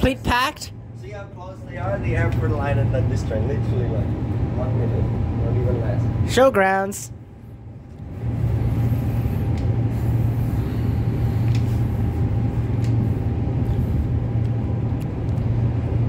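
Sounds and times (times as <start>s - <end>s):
train traction motors humming: 0.0s - 16.0s.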